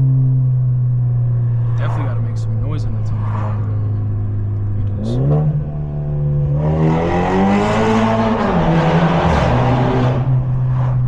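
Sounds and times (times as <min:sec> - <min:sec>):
car exhaust droning and revving: 0:00.0 - 0:11.0.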